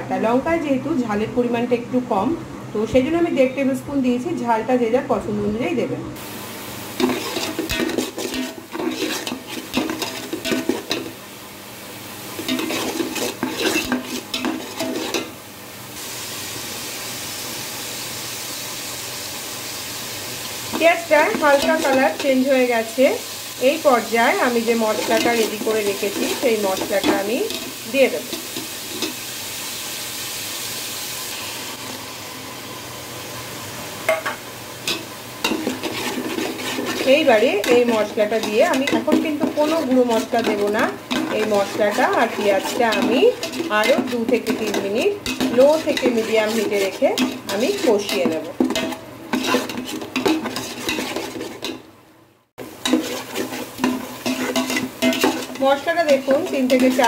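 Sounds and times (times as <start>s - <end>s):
oil sizzling: 6.2s - 57.0s
metal spatula scraping pot: 7.0s - 11.1s, 12.4s - 15.3s, 20.7s - 22.8s, 24.4s - 29.2s, 34.9s - 51.8s, 52.8s - 57.0s.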